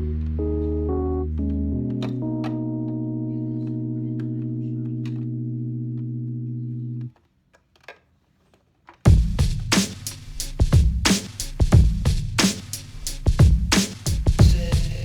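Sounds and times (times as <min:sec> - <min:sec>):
held electronic chord: 0:00.0 - 0:07.1.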